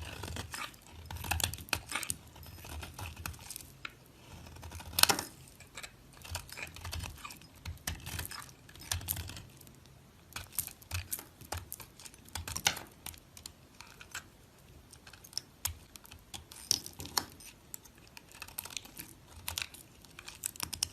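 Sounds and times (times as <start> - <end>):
dry soap crackling when cut: 0.0 - 13.2.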